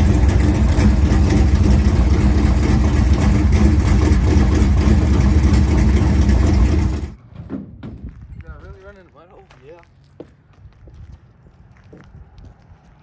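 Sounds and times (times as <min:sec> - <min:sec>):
engine idling: 0:00.0 - 0:07.2.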